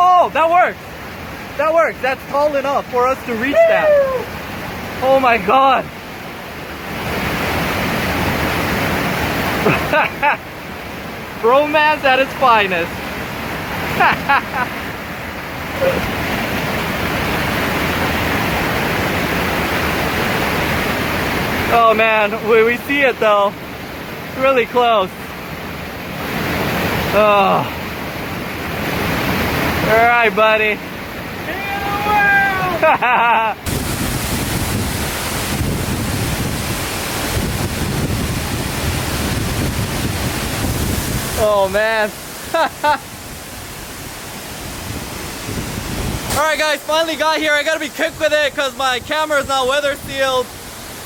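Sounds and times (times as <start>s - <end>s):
waterfall rushing: 0.0s - 51.0s
wind buffeting microphone: 33.6s - 42.4s, 43.1s - 46.4s.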